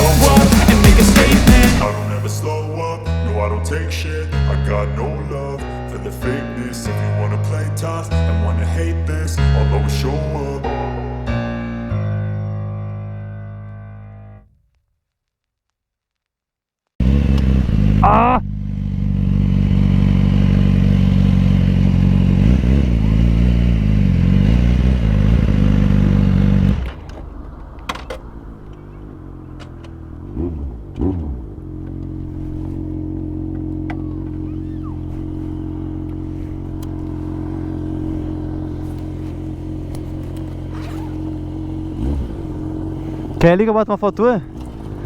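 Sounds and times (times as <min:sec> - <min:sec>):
motorcycle engine idling: 0:00.0 - 0:02.6, 0:17.5 - 0:45.0
motorcycle engine revving: 0:00.0 - 0:03.5, 0:17.0 - 0:45.0.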